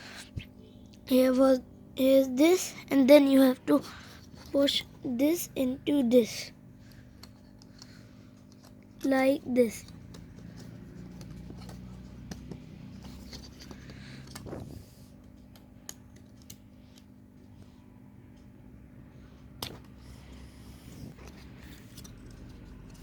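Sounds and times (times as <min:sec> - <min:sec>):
faint steady hum: 0:00.0 - 0:23.0
plastic parts clicking and scraping: 0:21.0 - 0:23.0.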